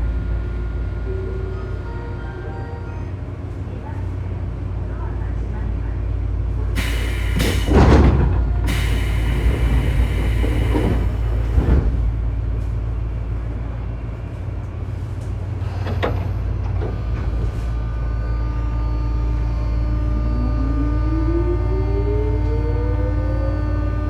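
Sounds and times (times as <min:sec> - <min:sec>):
train doors closing hiss and thump: 0:06.8 - 0:12.0
train motor low hum: 0:06.8 - 0:13.2, 0:16.9 - 0:24.0
train motor whine rising in pitch: 0:08.7 - 0:11.8, 0:18.6 - 0:24.0.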